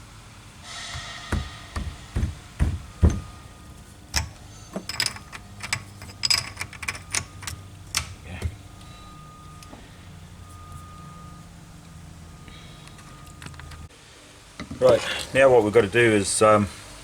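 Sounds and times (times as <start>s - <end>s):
heavy metal knocks: 0.7s - 9.2s
metal tools clinking: 0.9s - 12.0s.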